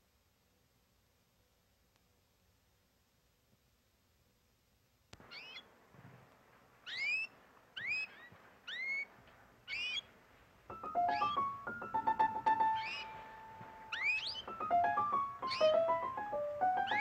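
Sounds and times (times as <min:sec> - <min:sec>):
bird chirping: 0:05.2 - 0:05.7, 0:06.8 - 0:17.0
keyboard instrument quick notes: 0:10.7 - 0:17.0.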